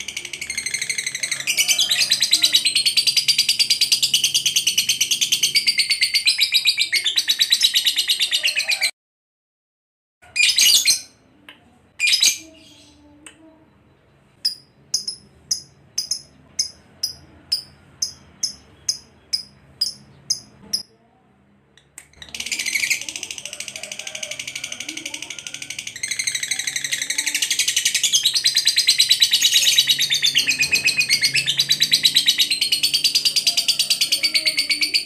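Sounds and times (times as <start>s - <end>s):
lovebird chattering: 0.0s - 8.8s, 14.4s - 20.8s, 22.1s - 35.0s
sharp bird calls: 25.2s - 35.0s.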